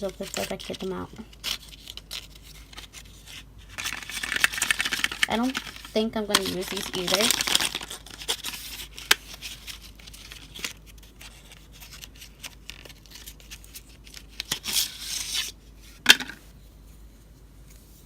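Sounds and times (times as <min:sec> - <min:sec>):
packaging rustling: 0:00.0 - 0:15.5.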